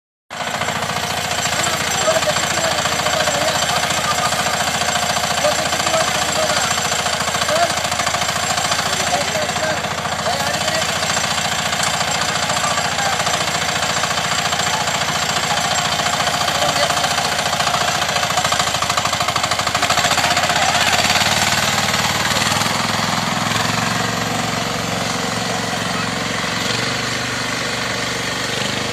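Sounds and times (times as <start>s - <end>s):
diesel engine knocking: 0.3s - 28.9s.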